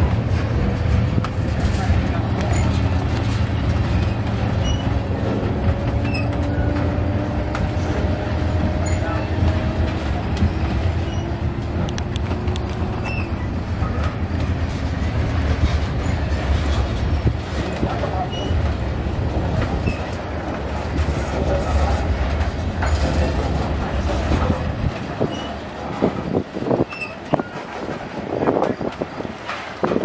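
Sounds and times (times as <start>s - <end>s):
railcars rumbling: 0.0s - 30.0s.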